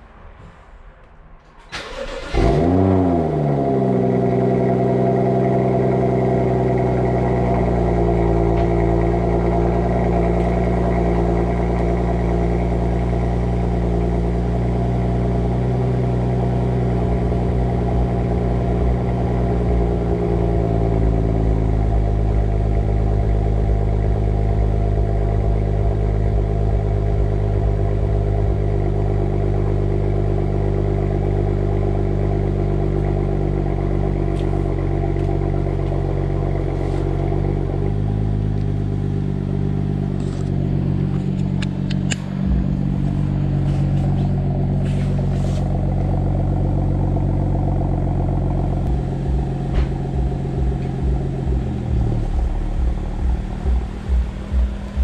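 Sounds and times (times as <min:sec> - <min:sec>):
engine cranking: 0:01.7 - 0:02.8
car engine revving and idling: 0:01.7 - 0:55.0.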